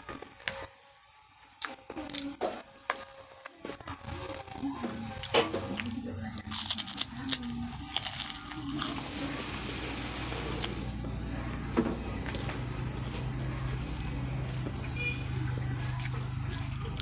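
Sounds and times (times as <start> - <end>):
low steady hum: 4.0 - 17.0
crunching crisp cracker: 5.1 - 10.9.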